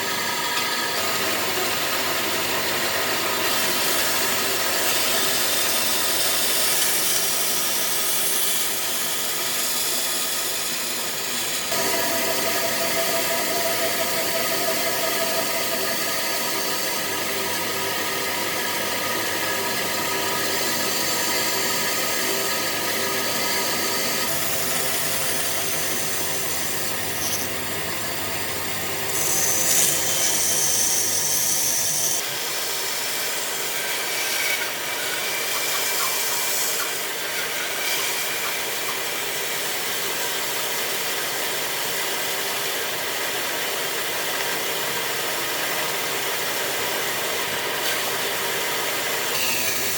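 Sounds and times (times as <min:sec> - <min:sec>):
power tool grinding wood: 0:00.0 - 0:39.4.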